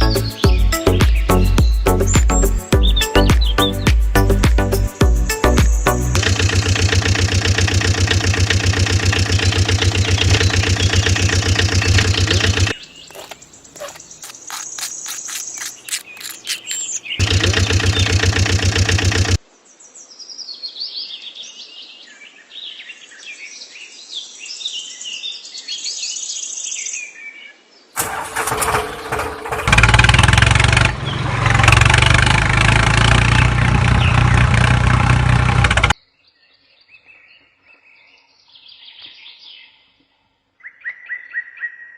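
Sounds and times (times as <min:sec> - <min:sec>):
birds chirping: 0:00.0 - 0:19.4, 0:30.8 - 0:34.9
engine running: 0:05.8 - 0:14.0, 0:16.4 - 0:19.4, 0:28.0 - 0:36.0
rapid clicks: 0:06.2 - 0:19.4, 0:34.6 - 0:36.0.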